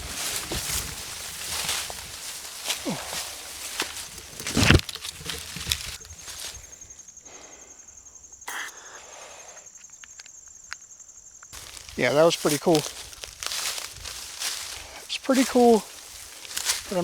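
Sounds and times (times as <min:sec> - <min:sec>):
footsteps crunching through brush: 0:00.0 - 0:06.8, 0:11.6 - 0:17.0
pulsing insect call: 0:00.0 - 0:17.0.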